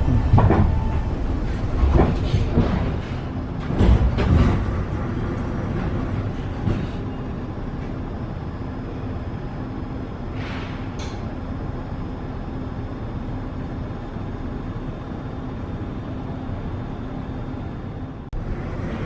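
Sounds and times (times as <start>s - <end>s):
train knocks and clatters: 0.0s - 11.9s
metro train rumbling: 0.0s - 19.0s.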